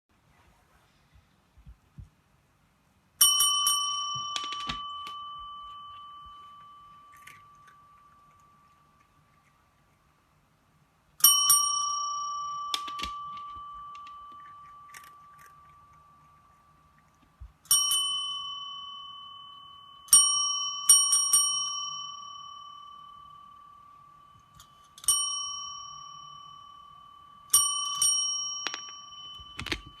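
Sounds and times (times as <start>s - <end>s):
small metal bell dinging: 3.2s - 9.0s, 11.2s - 16.8s, 17.6s - 30.0s.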